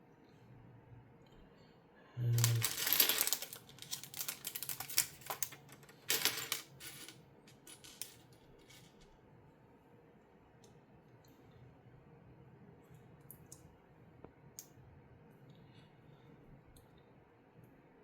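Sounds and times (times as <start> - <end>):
plastic toy bricks clattering: 2.4 - 9.0.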